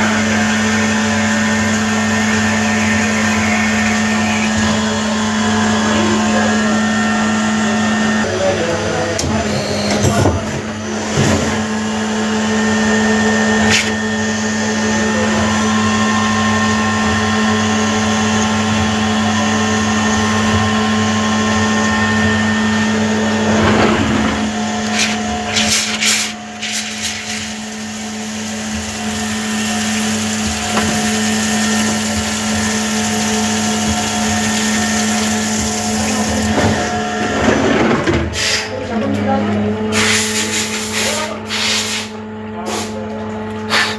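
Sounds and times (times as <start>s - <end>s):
sharp clicks: 0.0s - 4.5s
machine tool motor hum and whine: 0.0s - 4.7s.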